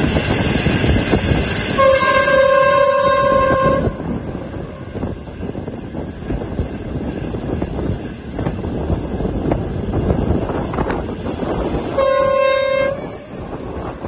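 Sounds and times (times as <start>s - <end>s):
train wheels rumbling on rail: 0.0s - 14.0s
train horn blast: 1.7s - 5.0s, 11.9s - 13.5s.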